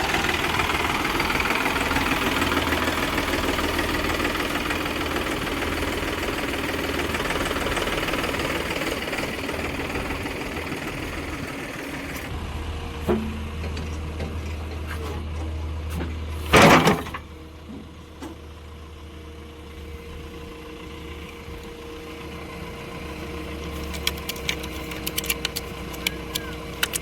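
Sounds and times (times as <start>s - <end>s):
diesel engine idling: 0.0s - 27.0s
sharp clicks: 23.8s - 27.0s.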